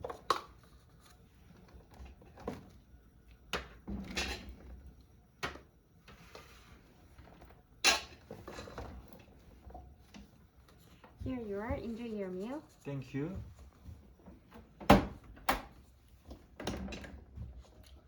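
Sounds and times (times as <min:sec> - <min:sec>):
objects knocking and clattering: 0:03.5 - 0:04.8, 0:07.2 - 0:10.3, 0:13.4 - 0:17.7.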